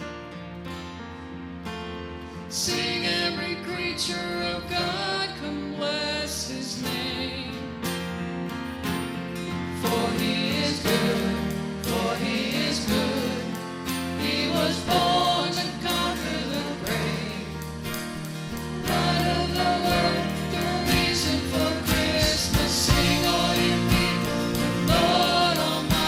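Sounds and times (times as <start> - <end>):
worship band music: 9.5 - 26.0
voices singing: 9.8 - 17.7, 18.6 - 26.0
steady drum beat: 18.2 - 26.0.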